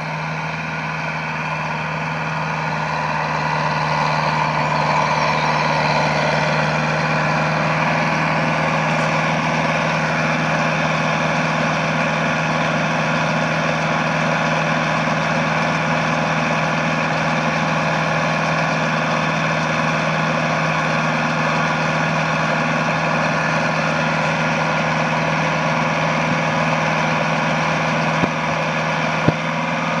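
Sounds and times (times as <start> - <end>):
tractor engine and baler running: 0.0 - 30.0.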